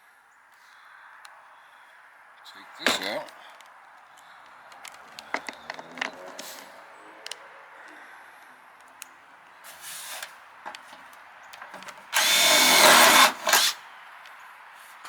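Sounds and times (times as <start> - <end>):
power drill boring metal: 12.1 - 13.8.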